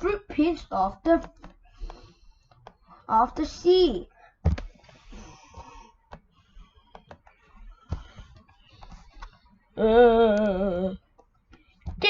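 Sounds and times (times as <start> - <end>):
light clicks and taps: 1.2 - 2.9.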